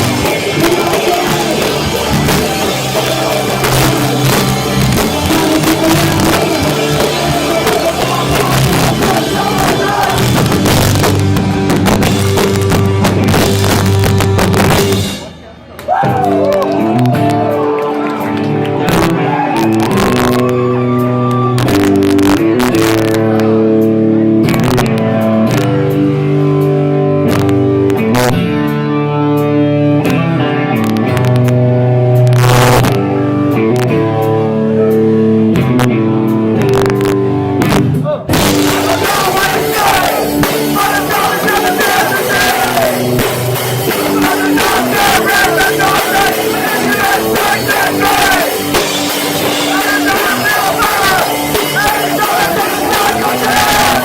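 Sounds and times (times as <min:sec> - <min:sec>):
distorted electric guitar chords: 0:00.0 - 0:15.5, 0:16.3 - 0:54.0
heavy rock band playing: 0:00.0 - 0:54.0
shouted vocals: 0:05.1 - 0:10.6, 0:38.0 - 0:43.2, 0:43.9 - 0:54.0.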